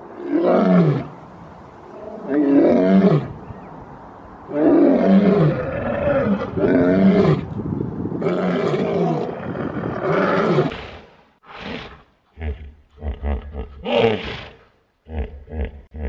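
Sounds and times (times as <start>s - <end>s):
lion roaring: 4.5s - 7.5s.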